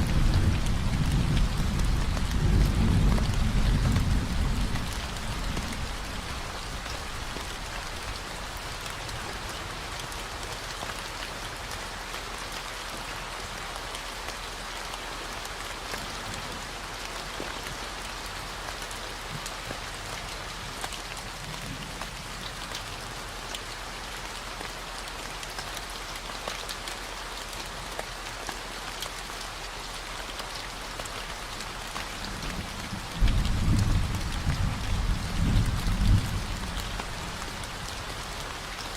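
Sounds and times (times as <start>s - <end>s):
thunder rumble: 0.0s - 8.1s, 32.1s - 38.2s
steady rain: 0.0s - 38.9s.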